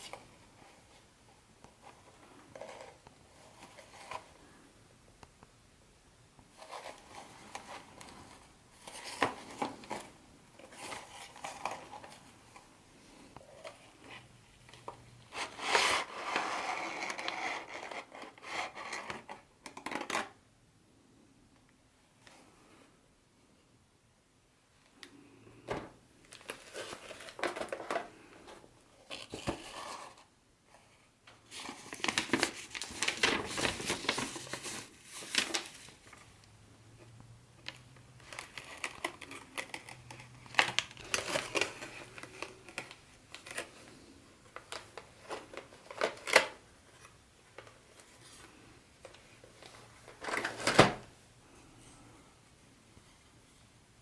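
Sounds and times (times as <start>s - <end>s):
packaging crinkling and rustling: 26.2s - 30.2s, 31.4s - 36.5s, 37.6s - 51.1s.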